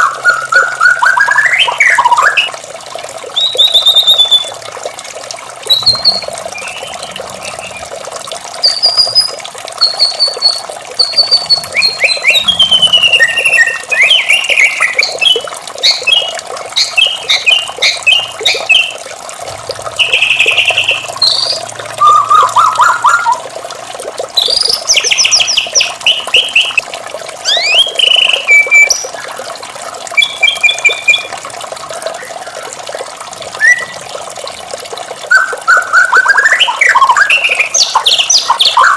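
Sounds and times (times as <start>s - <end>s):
bird singing whistles and trills: 0.0s - 2.5s, 3.3s - 4.5s, 5.7s - 7.8s, 8.6s - 19.0s, 20.0s - 23.4s, 24.4s - 26.8s, 27.4s - 29.4s, 30.2s - 31.3s, 33.6s - 34.0s, 35.3s - 38.9s
running water: 0.0s - 38.9s.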